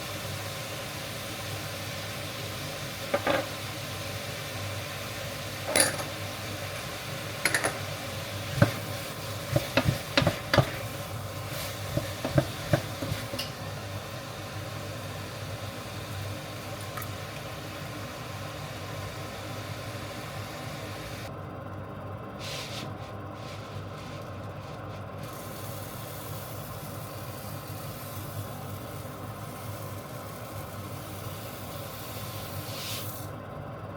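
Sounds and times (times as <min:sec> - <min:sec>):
sizzling hiss: 0:00.0 - 0:21.3, 0:25.2 - 0:33.4
utensil clinking against pot: 0:05.7 - 0:06.2, 0:07.4 - 0:07.9.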